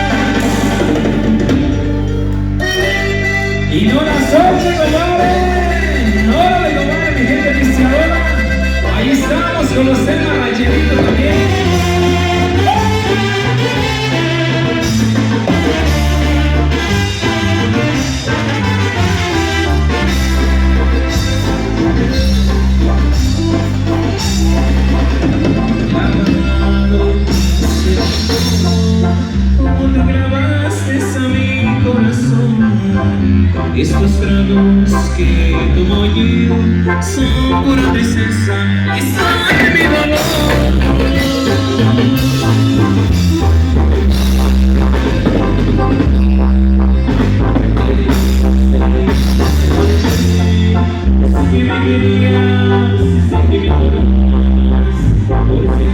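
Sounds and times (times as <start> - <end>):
person singing: 0.0 - 13.9, 23.4 - 43.6, 49.6 - 55.9
drum kit and bass beat: 0.0 - 30.2, 39.0 - 55.9
instrumental dance music: 35.7 - 55.8.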